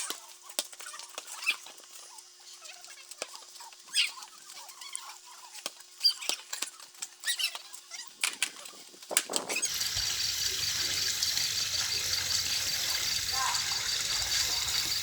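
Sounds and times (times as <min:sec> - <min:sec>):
water spraying from garden hose: 0:09.6 - 0:15.0.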